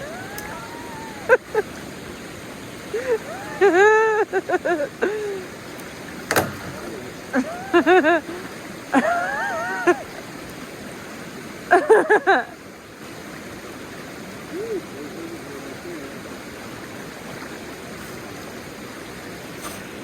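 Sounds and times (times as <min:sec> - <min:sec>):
short high vocal sounds: 0:00.0 - 0:01.4
river water rushing: 0:00.0 - 0:20.0.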